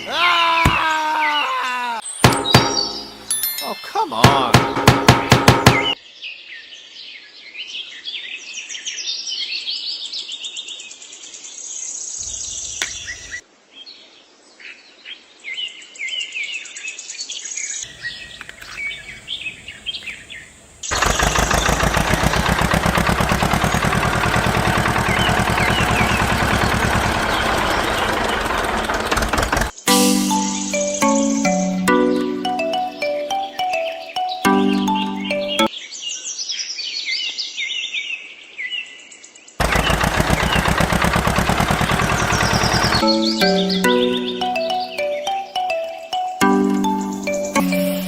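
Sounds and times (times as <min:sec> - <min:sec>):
birds chirping and calling: 0:00.0 - 0:06.0, 0:12.2 - 0:13.4, 0:17.8 - 0:28.9, 0:29.6 - 0:35.8, 0:39.6 - 0:48.0
engine running with even beat: 0:20.9 - 0:30.4, 0:39.6 - 0:45.6.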